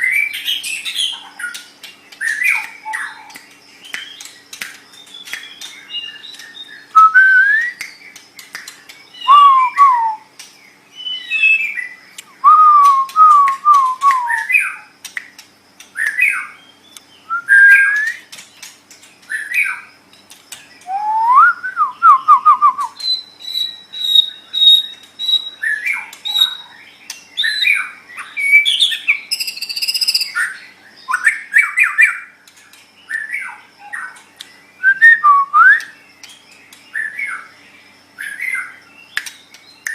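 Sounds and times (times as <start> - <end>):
bird singing whistled phrases: 4.9 - 8.2, 9.1 - 10.3, 10.9 - 14.9, 16.0 - 18.3, 20.8 - 26.7, 27.4 - 32.3, 34.8 - 36.0.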